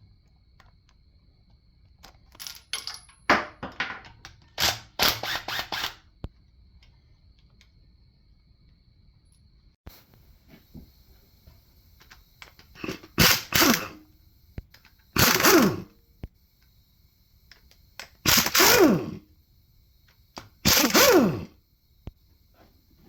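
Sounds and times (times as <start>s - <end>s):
impact wrench bursts: 4.6s - 6.0s, 12.0s - 14.1s, 15.0s - 16.0s, 18.0s - 19.3s, 20.4s - 21.6s.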